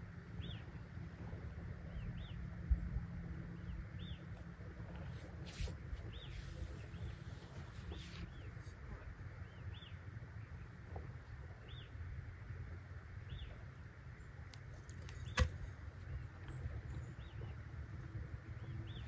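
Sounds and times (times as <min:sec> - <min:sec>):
low steady rumble: 0:00.0 - 0:19.0
bird chirping: 0:03.5 - 0:04.4, 0:06.0 - 0:10.7, 0:13.2 - 0:19.0.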